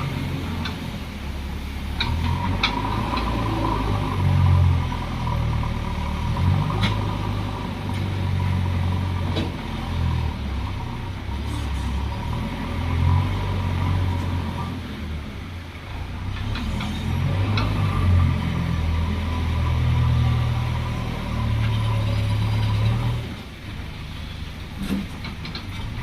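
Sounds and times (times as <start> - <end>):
diesel engines under load: 0.0 - 26.0.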